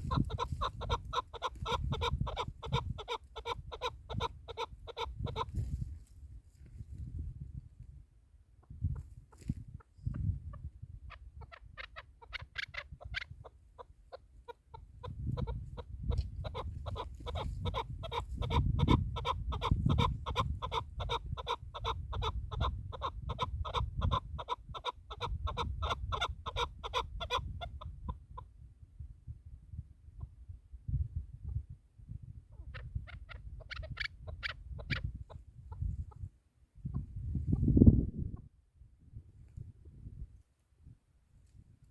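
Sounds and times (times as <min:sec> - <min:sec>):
partridge chuck calls: 0:00.0 - 0:05.8, 0:08.6 - 0:28.5, 0:32.5 - 0:36.2.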